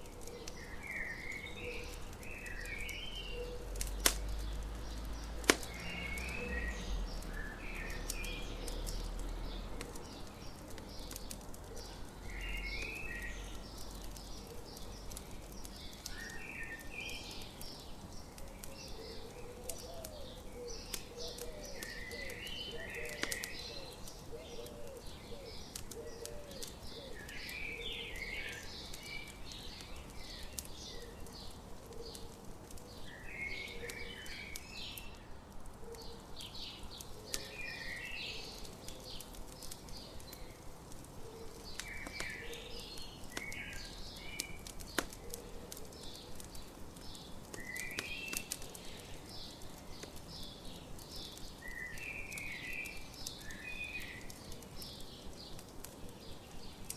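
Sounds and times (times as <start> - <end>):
birds chirping: 0.0 - 56.9
crackling campfire: 0.0 - 56.9.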